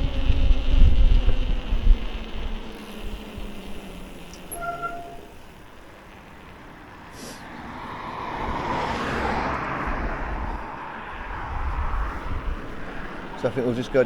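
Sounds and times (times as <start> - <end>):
vehicle passing by: 6.9 - 14.0.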